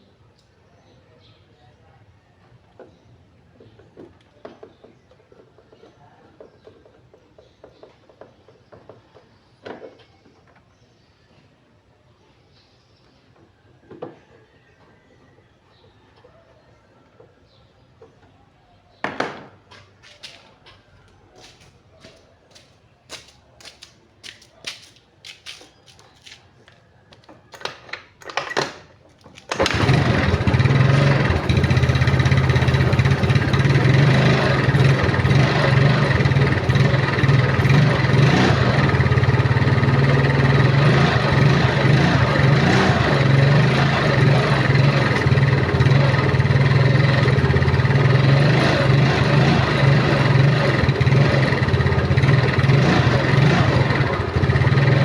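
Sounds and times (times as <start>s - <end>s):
small engine running: 29.5s - 55.0s.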